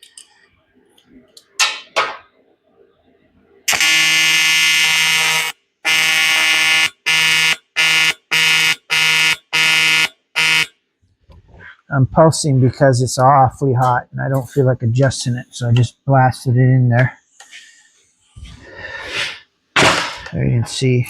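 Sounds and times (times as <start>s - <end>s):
welding arc buzzing: 3.7s - 10.7s.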